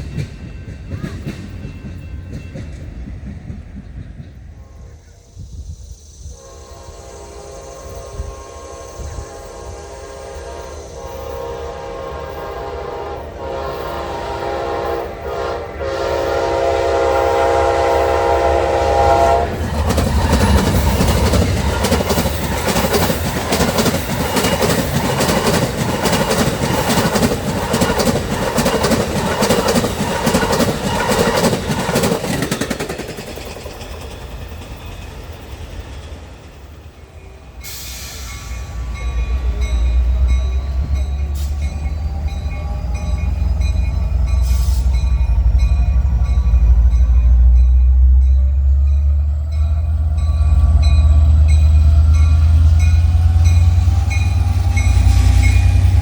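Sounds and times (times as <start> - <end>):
train wheels clacking: 0.0 - 5.1, 8.9 - 56.0
train horn chord: 6.4 - 19.6.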